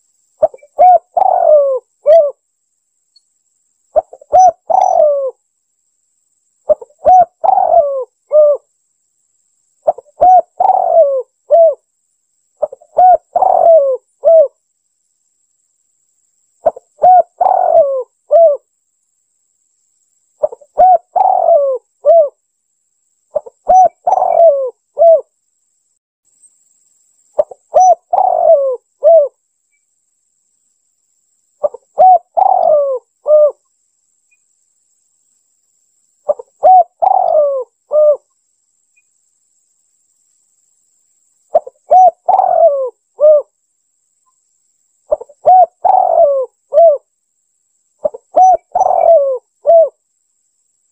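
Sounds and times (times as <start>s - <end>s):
dove cooing: 0.4s - 2.4s, 4.0s - 5.4s, 6.7s - 8.7s, 9.8s - 11.8s, 12.6s - 14.6s, 16.6s - 18.7s, 20.4s - 22.4s, 23.3s - 25.3s, 27.4s - 29.4s, 31.6s - 33.6s, 36.3s - 38.2s, 41.5s - 43.5s, 45.1s - 47.1s, 48.0s - 50.0s.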